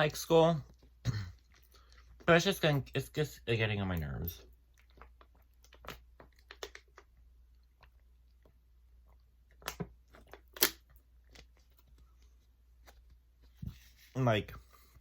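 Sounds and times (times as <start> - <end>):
person chewing food: 4.6 - 12.0.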